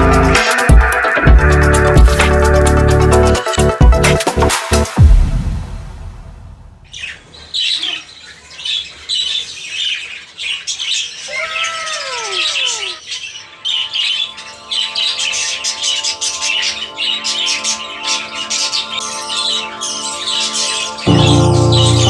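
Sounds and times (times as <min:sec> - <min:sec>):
steady music tones: 0:00.0 - 0:07.3, 0:20.9 - 0:22.0
budgerigars chirping and squawking: 0:06.9 - 0:22.0.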